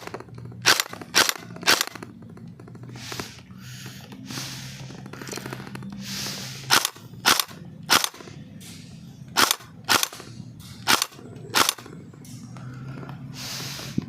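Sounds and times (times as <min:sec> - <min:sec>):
airsoft rifle shots: 0:00.0 - 0:02.1, 0:06.7 - 0:08.4, 0:09.3 - 0:11.9.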